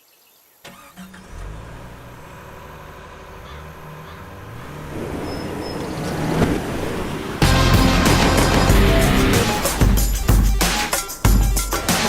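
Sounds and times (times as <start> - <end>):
diesel truck engine revving: 0.7 - 10.1.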